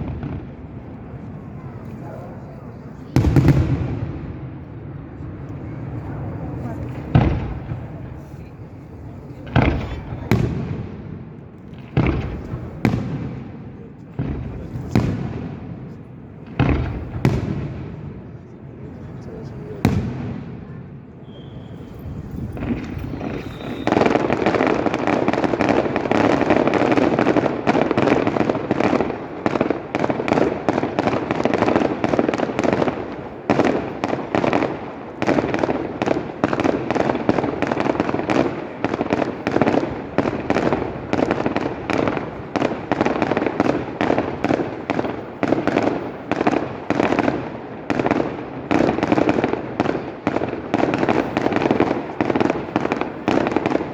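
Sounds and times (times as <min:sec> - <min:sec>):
fireworks bangs and crackling: 0:00.0 - 0:53.9.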